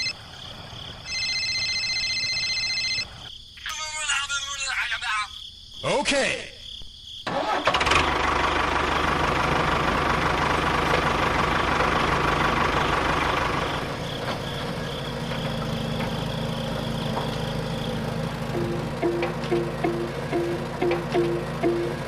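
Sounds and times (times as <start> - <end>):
engine running steadily: 7.6 - 22.0.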